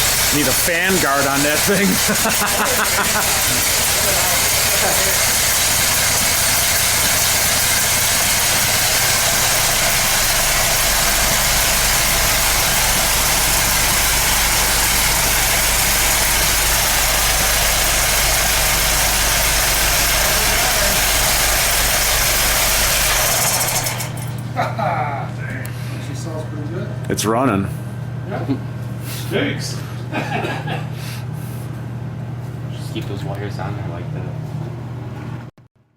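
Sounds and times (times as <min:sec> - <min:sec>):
deep low hum: 0:00.0 - 0:22.9
car engine running: 0:00.0 - 0:24.4.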